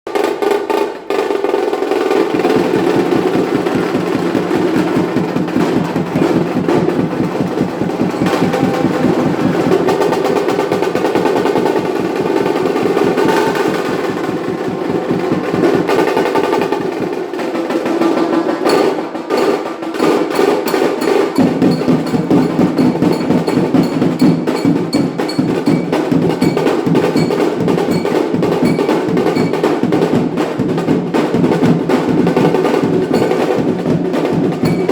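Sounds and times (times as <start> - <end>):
rapid drumming and snare rolls: 0.1 - 34.9
wedding brass band playing: 2.2 - 24.0.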